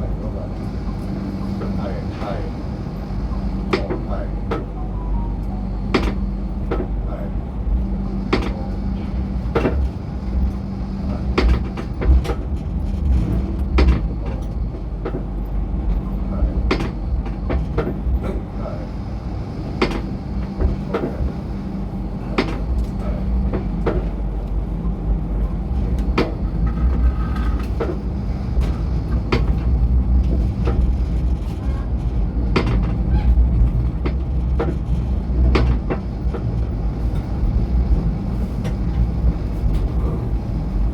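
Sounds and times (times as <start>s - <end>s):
train car rumble and hum: 0.0s - 40.9s
wheels clicking on rails: 19.6s - 40.9s.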